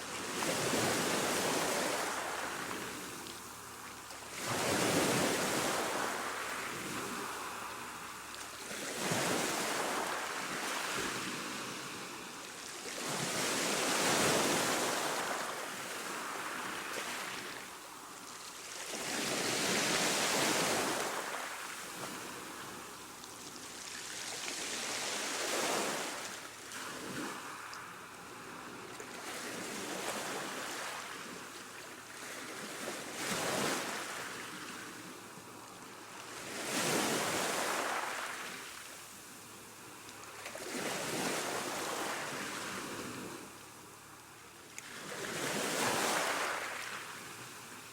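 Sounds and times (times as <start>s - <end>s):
ocean waves breaking: 0.0s - 17.7s.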